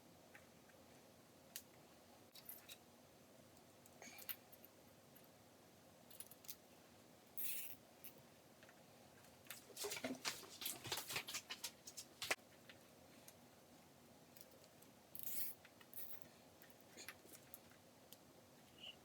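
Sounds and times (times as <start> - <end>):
wires rustling: 9.2 - 13.4.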